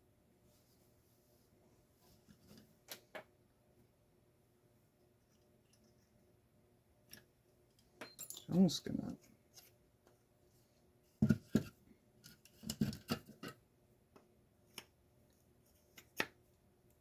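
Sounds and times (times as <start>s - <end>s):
small parts clicking and knocking: 7.0s - 8.6s.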